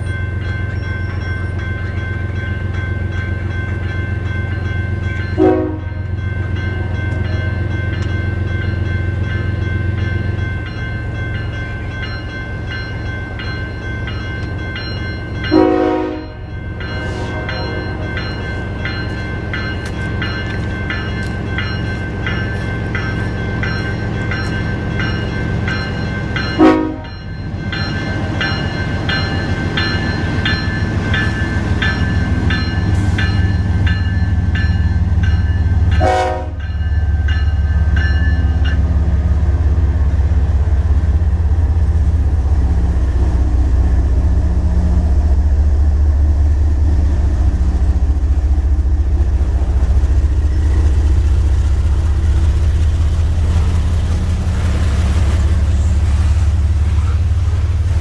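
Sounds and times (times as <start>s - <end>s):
level-crossing bell ringing: 0.0s - 39.1s
diesel locomotives rumbling: 0.0s - 58.0s
train horn toots: 5.4s - 6.0s, 15.5s - 18.1s, 26.6s - 27.2s, 36.0s - 36.6s.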